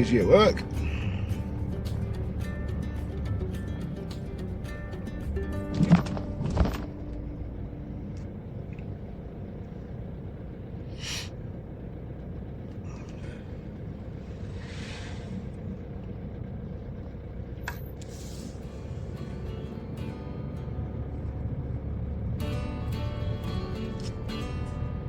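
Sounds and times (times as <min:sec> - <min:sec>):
road rumble inside car: 0:00.0 - 0:25.0
hissing: 0:14.0 - 0:15.7.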